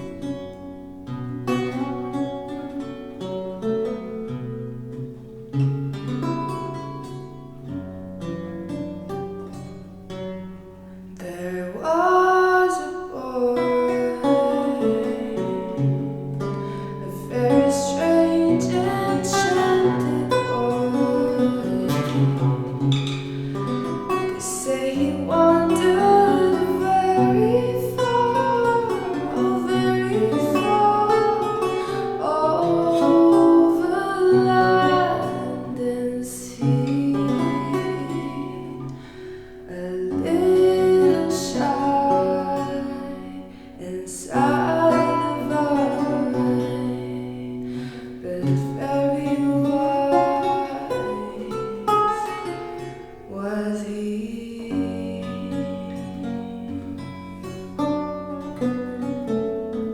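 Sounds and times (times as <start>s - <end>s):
plucked archlute: 0.0s - 59.9s
woman singing jazz melody: 11.1s - 57.6s.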